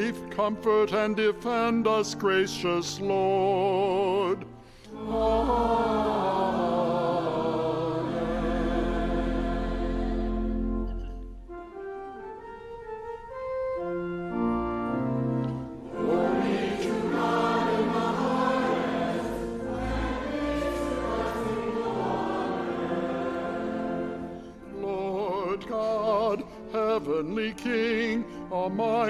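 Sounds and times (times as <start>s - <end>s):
choir singing a hymn: 4.9s - 11.1s, 15.7s - 29.0s
church organ chords: 4.9s - 27.2s.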